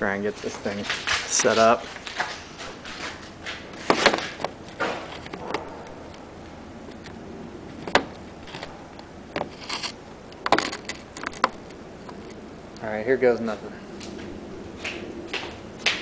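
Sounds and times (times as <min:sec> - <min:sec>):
handling knocks and clicks: 0:00.5 - 0:06.3, 0:06.9 - 0:12.4.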